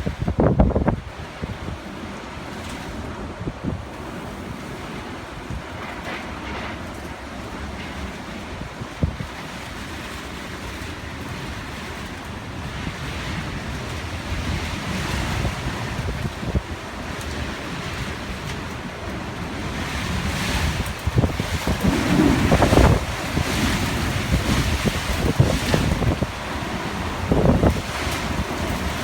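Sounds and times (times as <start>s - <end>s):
strong wind blowing: 0.0s - 5.9s, 19.4s - 29.0s
wind gusts buffeting microphone: 0.0s - 29.0s.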